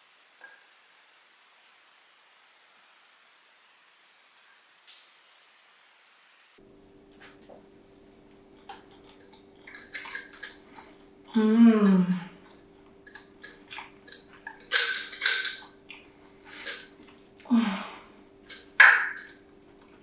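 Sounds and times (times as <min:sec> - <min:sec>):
steady low hum: 0:06.6 - 0:20.0
person saying mmm: 0:11.4 - 0:12.4.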